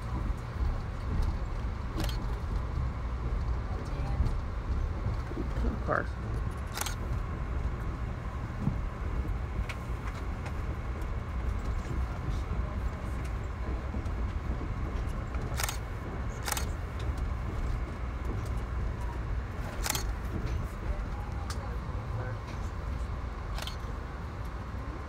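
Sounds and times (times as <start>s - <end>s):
train rumble inside coach: 0.0s - 25.0s.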